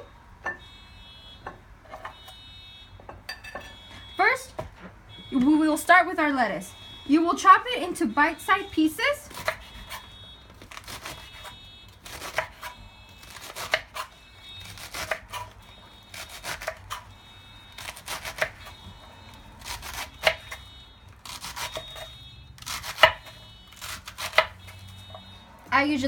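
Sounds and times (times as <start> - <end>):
knife chopping lettuce on board: 22.6 - 24.6.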